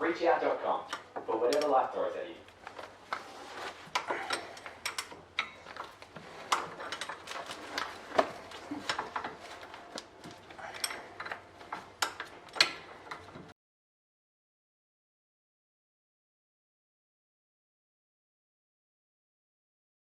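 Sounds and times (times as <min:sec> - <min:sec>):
metal tools clinking and knocking: 0:00.9 - 0:01.8, 0:03.9 - 0:13.5.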